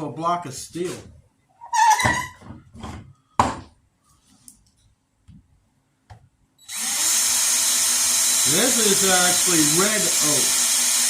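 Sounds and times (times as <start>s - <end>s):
electric drill boring into wood: 6.6s - 11.0s.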